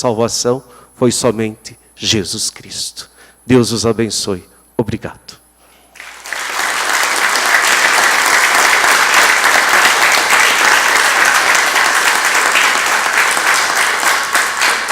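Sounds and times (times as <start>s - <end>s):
audience applauding: 6.0s - 14.9s.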